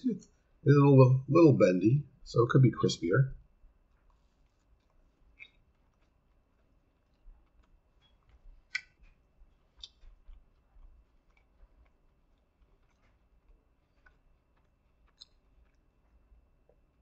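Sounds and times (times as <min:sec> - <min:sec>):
faint chewing with crunches: 0:03.4 - 0:17.0.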